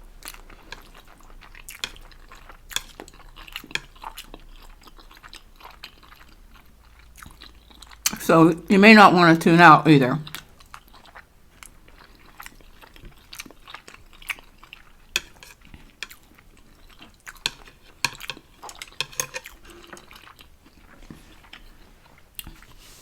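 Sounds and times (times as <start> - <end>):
utensils clicking and scraping dish: 1.7 - 2.0, 2.7 - 4.0, 15.1 - 16.2, 17.4 - 20.2.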